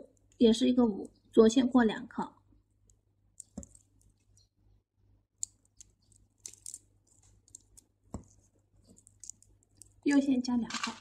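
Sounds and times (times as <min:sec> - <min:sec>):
small beads clicking together: 0:02.8 - 0:04.5, 0:05.4 - 0:07.9, 0:08.9 - 0:11.0.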